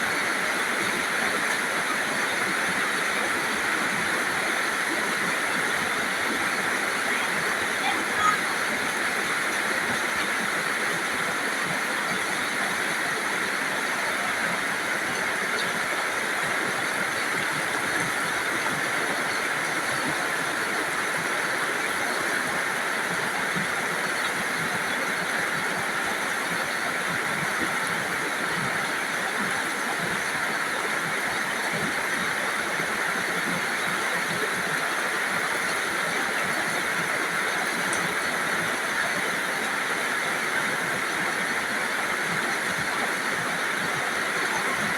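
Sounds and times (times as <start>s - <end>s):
steady rainfall: 0.0s - 44.9s.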